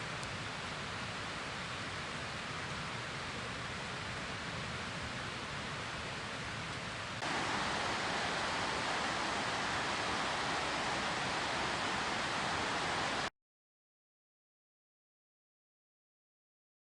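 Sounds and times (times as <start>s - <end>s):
steady rushing noise: 4.2s - 13.3s.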